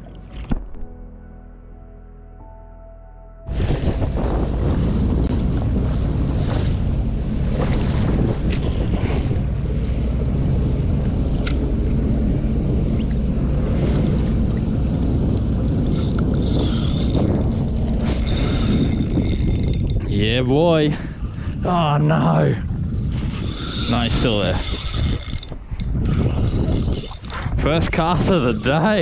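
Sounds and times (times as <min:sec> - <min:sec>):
jet ski engine droning: 0:03.5 - 0:20.5
wind buffeting microphone: 0:03.5 - 0:29.0.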